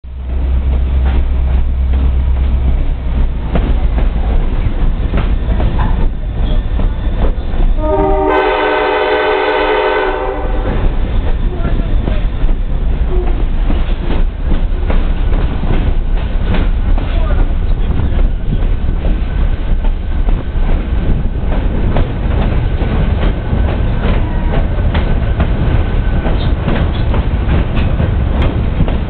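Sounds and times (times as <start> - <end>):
train rumbling on track: 0.0 - 29.0
wheels clicking over rail joints: 0.2 - 7.8, 10.7 - 29.0
locomotive horn blast: 7.8 - 10.9.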